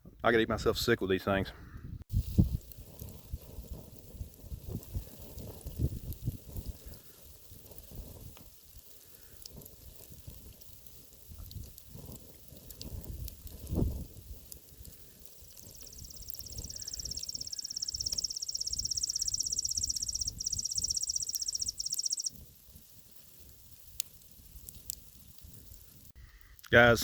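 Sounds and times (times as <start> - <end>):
campfire crackling: 2.1 - 27.0
insect buzzing trill: 15.9 - 22.3.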